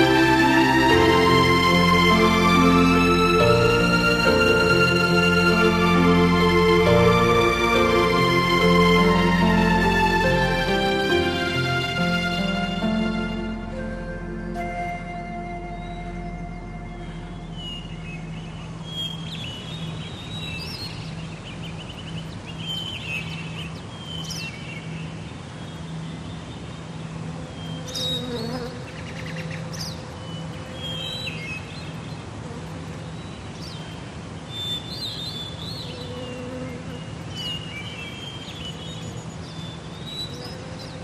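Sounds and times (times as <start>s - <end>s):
steady low hum: 0.0s - 20.4s
birds chirping: 0.0s - 32.4s.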